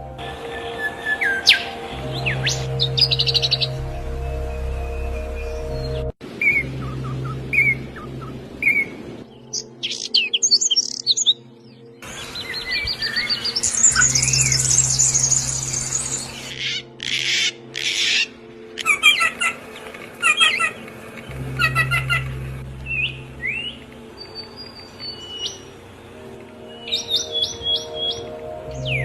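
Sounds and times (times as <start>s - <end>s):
small songbirds chirping: 0.0s - 29.0s
high-pitched bird trill: 12.4s - 19.4s.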